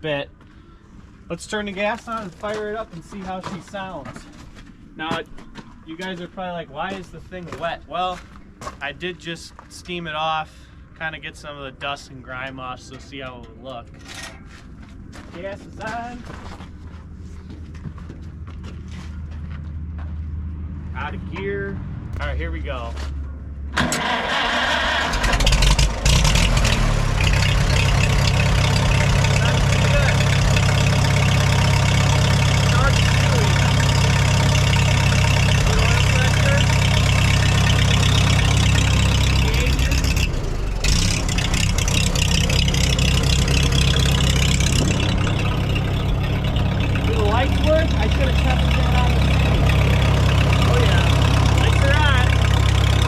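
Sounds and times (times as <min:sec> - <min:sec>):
tractor engine starting: 0:23.7 - 0:53.0.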